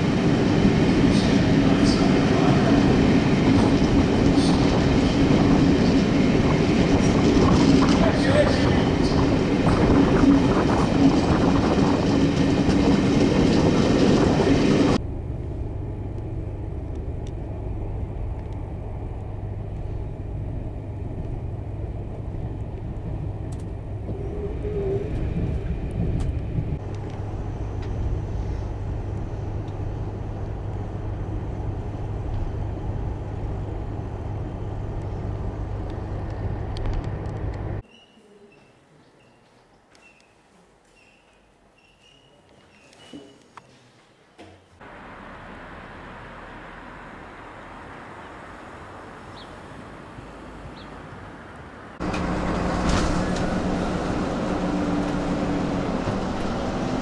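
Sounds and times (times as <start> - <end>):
train rumbling and humming: 0.0 - 37.8, 44.8 - 57.0
train pulling out of station: 0.0 - 38.4, 51.9 - 57.0.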